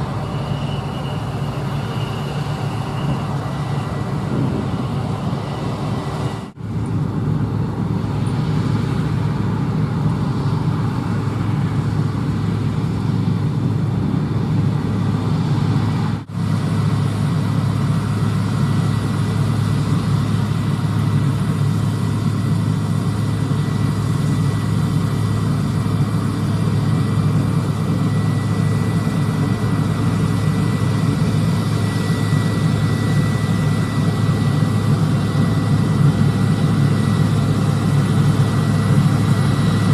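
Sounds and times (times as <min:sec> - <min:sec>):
thin high whine: 0:00.0 - 0:07.0
diesel engines running: 0:00.0 - 0:39.9.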